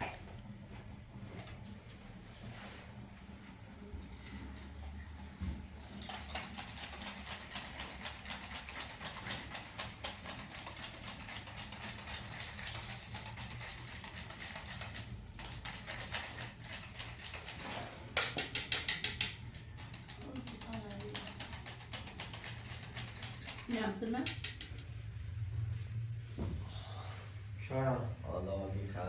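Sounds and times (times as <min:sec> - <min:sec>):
rapid tapping and clicking: 0:06.0 - 0:24.8.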